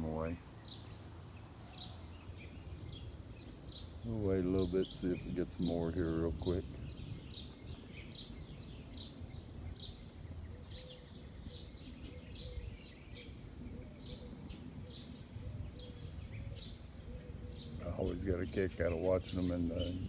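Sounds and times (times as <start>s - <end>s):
bird chirping: 0.0s - 20.0s
low outdoor rumble: 0.0s - 20.0s.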